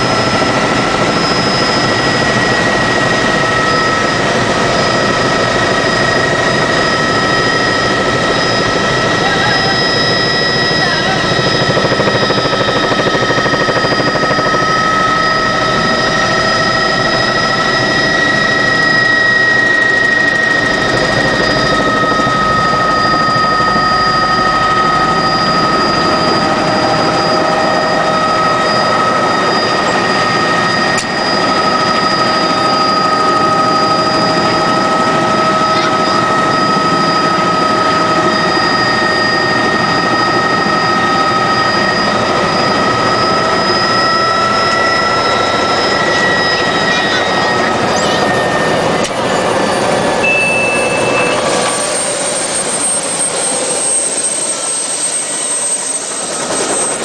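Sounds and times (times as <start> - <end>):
rotor and airflow noise: 0.0 - 40.9
helicopter engine whine: 0.0 - 57.0.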